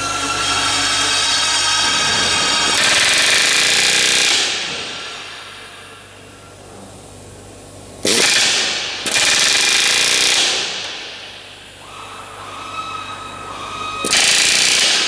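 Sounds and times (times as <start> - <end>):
pneumatic tool whine: 0.0 - 6.5, 8.0 - 15.0
pneumatic tool bursts: 1.8 - 6.2, 8.0 - 12.8, 13.6 - 15.0.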